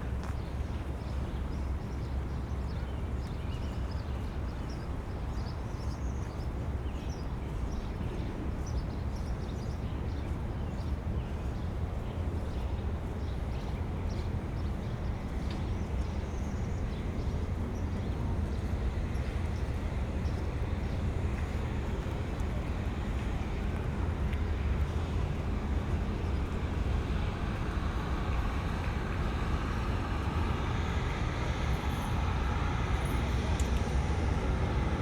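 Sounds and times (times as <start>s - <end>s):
low city rumble: 0.0s - 35.0s
light footsteps: 18.5s - 35.0s.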